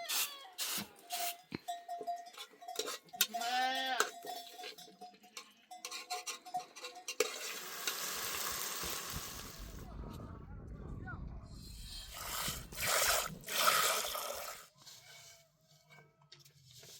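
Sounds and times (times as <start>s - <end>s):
sheep or goat bleating: 3.2s - 4.2s
steady hiss: 7.6s - 9.8s.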